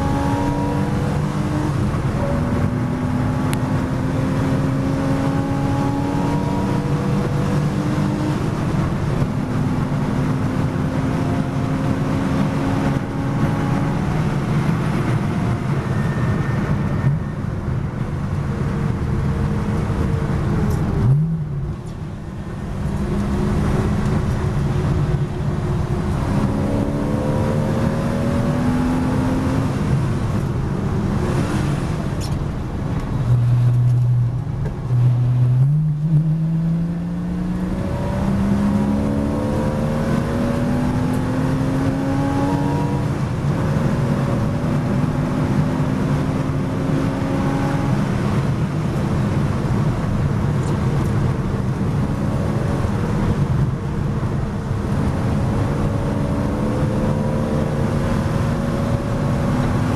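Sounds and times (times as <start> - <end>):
race car engine accelerating: 0.0 - 17.3, 22.5 - 32.3, 33.0 - 59.9.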